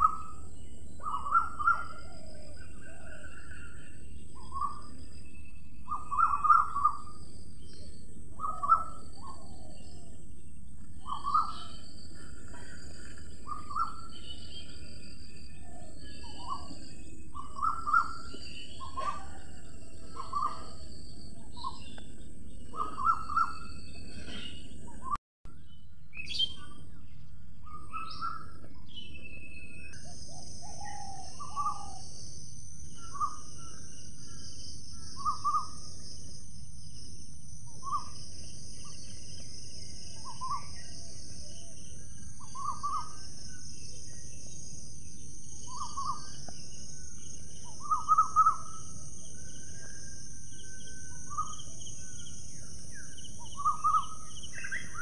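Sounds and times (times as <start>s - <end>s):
birds calling and chirping: 0.0s - 55.0s
high insect drone: 30.0s - 55.0s.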